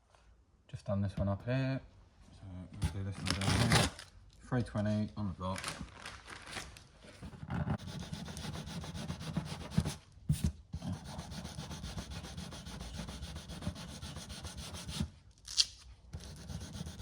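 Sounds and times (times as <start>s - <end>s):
hand sanding back and forth: 7.7s - 15.1s, 16.2s - 17.0s.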